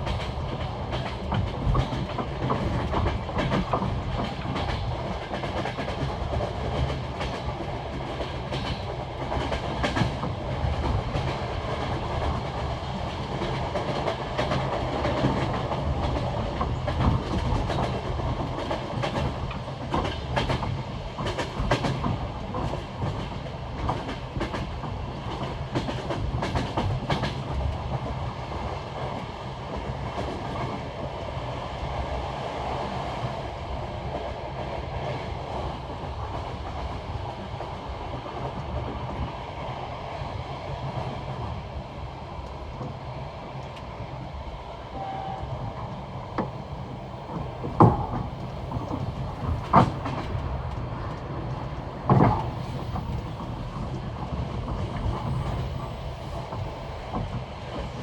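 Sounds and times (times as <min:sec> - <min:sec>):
train wheels clacking over rail joints: 0:00.0 - 0:27.8, 0:45.6 - 0:58.0
train rolling rumble: 0:00.0 - 0:58.0.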